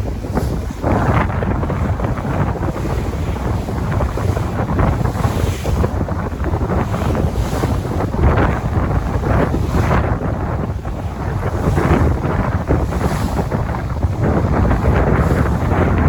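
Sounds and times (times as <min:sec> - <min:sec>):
sea waves washing: 0:00.0 - 0:16.0
wind buffeting microphone: 0:00.0 - 0:16.0.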